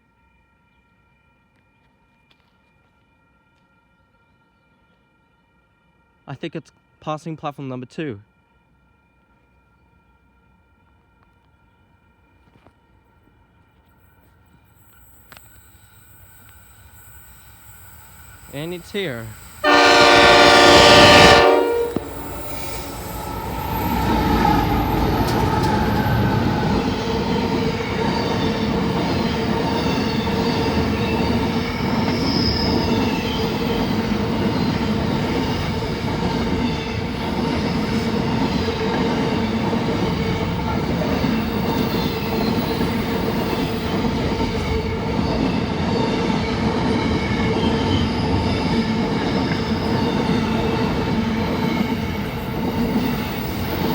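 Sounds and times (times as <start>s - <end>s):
train wheels on rails: 12.2s - 53.9s
locomotive horn blast: 19.6s - 26.9s
wheel squeal: 22.0s - 35.7s, 44.8s - 53.9s.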